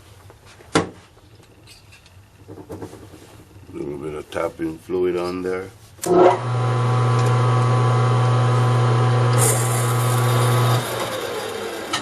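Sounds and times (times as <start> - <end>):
metal lathe motor hum: 6.1 - 12.0.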